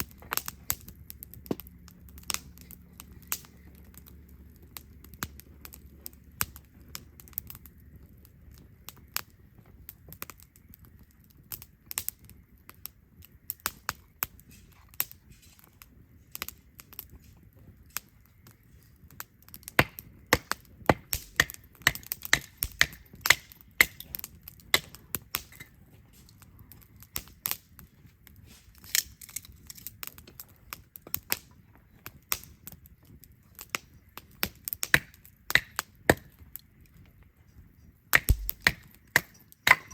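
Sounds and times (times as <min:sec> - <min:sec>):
faint low rumble: 0:00.0 - 0:10.0, 0:38.3 - 0:38.7
campfire crackling and popping: 0:00.0 - 0:39.9.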